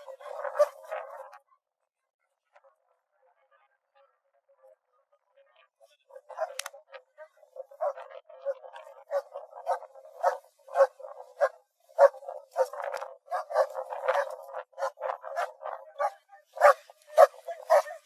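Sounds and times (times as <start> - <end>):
dog barking: 0.0 - 1.2, 6.1 - 18.0.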